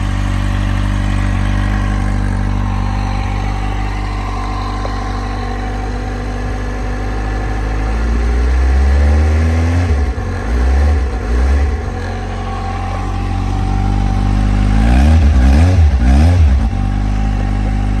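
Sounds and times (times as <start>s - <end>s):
motorcycle engine idling and revving: 0.0s - 18.0s.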